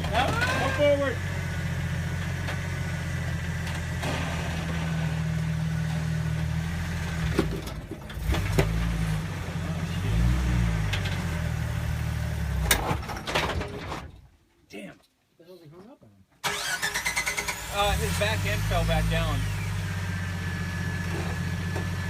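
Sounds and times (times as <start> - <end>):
off-road engine pulling at low revs: 0.0 - 13.1, 16.4 - 22.0.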